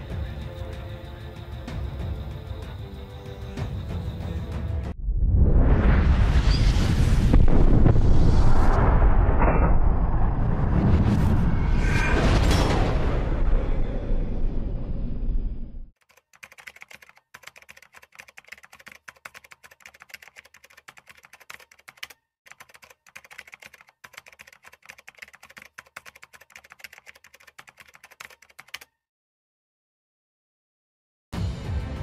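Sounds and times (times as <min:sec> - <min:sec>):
keyboard typing clicks: 0:16.0 - 0:28.9.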